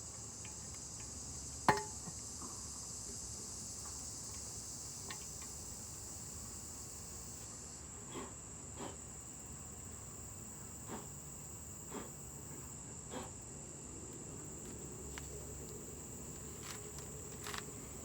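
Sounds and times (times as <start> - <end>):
high insect trill: 0.0 - 12.8, 13.8 - 18.0
scuffing handling noises: 14.6 - 18.0.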